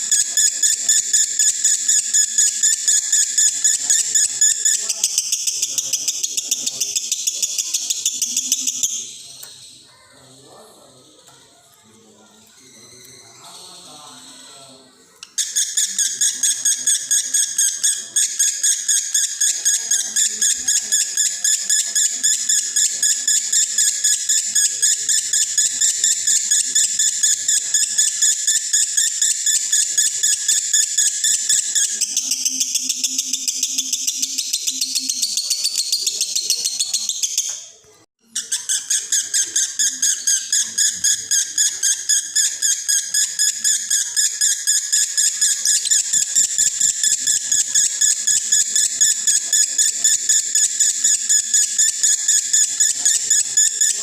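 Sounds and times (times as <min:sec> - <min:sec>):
lovebird chattering song: 0:00.0 - 0:10.4, 0:15.2 - 0:37.7, 0:38.3 - 0:54.0.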